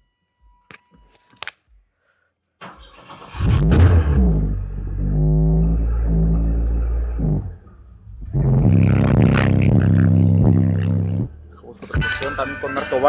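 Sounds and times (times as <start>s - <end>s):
engine cranking and starting: 2.6s - 10.0s
engine idling: 2.9s - 11.7s.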